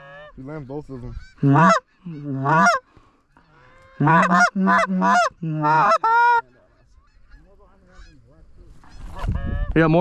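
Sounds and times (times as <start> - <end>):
goose honking: 0.0 - 2.8, 3.4 - 8.3.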